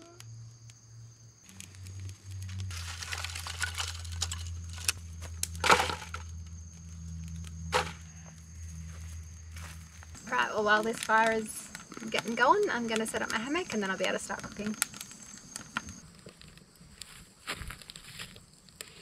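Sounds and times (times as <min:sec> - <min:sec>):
campfire crackling: 0:00.0 - 0:19.0
sharp snaps of burning wood: 0:00.2 - 0:06.4, 0:10.8 - 0:19.0.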